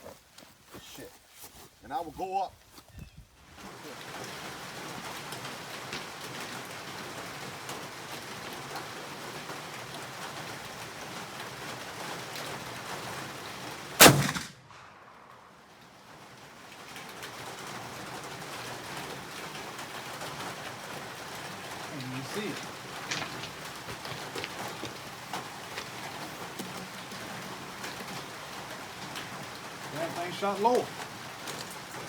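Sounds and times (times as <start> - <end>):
rain hissing: 3.4 - 32.0
gunshot: 14.0 - 15.2.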